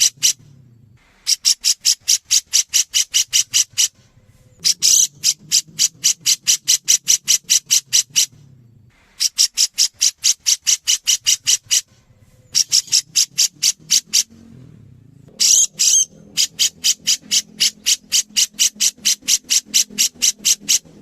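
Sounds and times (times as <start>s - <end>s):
bird calling in sharp high notes: 1.2s - 8.4s, 15.4s - 21.0s.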